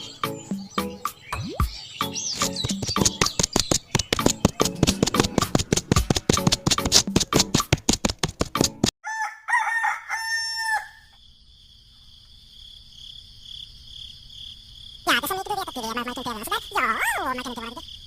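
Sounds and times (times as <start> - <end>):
music: 0.0 - 8.9
rooster crowing: 9.0 - 11.2
crickets chirring: 10.4 - 18.0.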